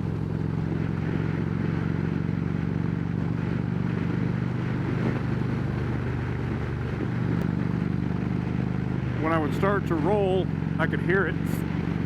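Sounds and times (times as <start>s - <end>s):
wind noise on microphone: 0.0s - 9.2s
motorcycle engine cruising: 0.0s - 12.0s.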